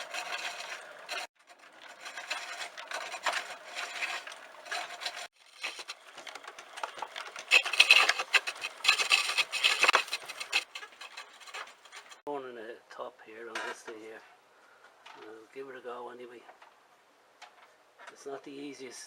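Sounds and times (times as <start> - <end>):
lathe scraping wood: 0.0 - 12.2.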